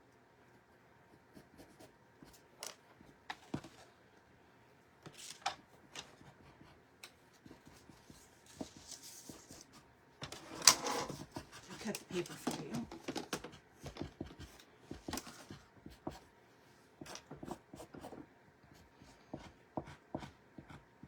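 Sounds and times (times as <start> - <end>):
soft paper rustling: 7.1 - 9.8, 11.1 - 13.4.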